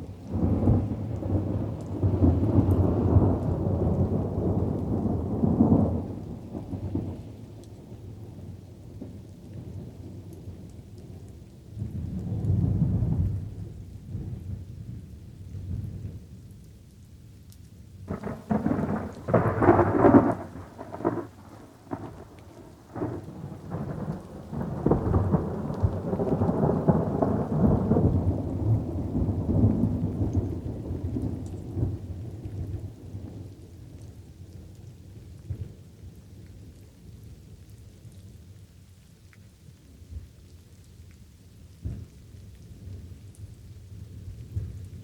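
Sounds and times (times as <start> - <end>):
light rain: 0.0 - 45.0
thunder rumbling: 0.3 - 7.2, 18.1 - 34.5
thunder clap: 18.1 - 32.0.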